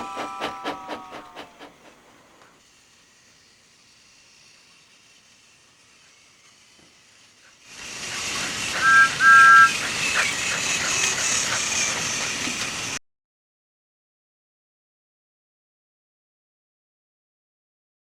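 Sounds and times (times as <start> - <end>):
two-note steam whistle blasts: 0.0 - 1.7, 8.7 - 10.4
steam locomotive hissing: 0.0 - 13.0.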